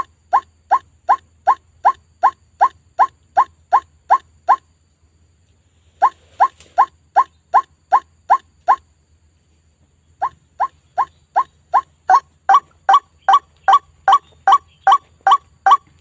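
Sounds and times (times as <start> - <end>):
waterhen calls: 0.0 - 4.6, 10.2 - 15.9.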